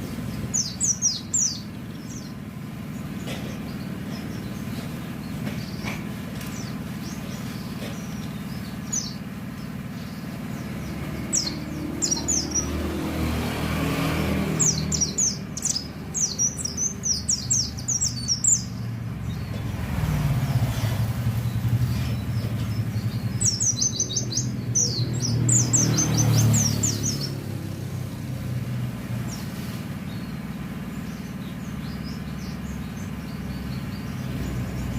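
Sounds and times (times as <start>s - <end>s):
bird twittering chirps: 0.0s - 34.9s
road traffic rumble: 0.0s - 34.9s.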